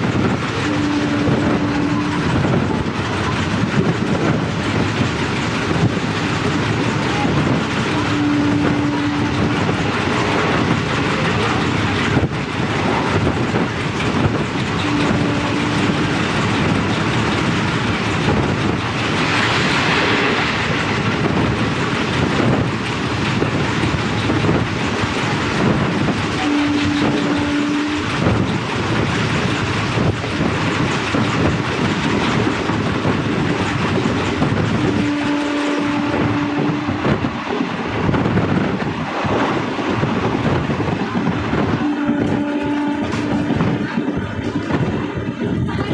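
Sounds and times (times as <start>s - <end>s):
train wheels clattering on track: 0.0s - 45.9s
train horn: 0.2s - 3.4s, 7.0s - 11.7s, 14.0s - 16.5s, 25.8s - 28.4s, 34.6s - 37.4s, 41.5s - 44.0s.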